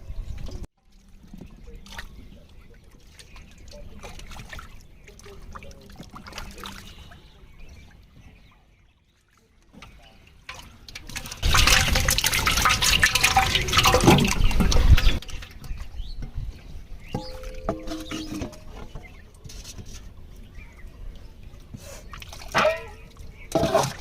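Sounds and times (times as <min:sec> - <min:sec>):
water splashing and pouring: 0:00.8 - 0:08.1, 0:09.1 - 0:16.1, 0:17.1 - 0:20.4, 0:21.8 - 0:24.0.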